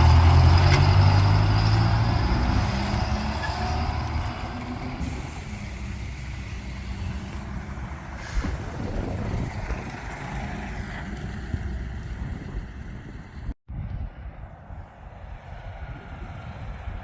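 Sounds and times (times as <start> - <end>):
lorry diesel engine running: 0.0 - 13.6.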